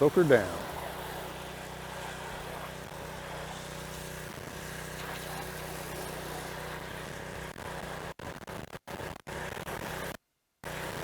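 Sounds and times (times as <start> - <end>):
pressure washer engine running: 0.0 - 7.5
hissing water spray: 0.0 - 7.9.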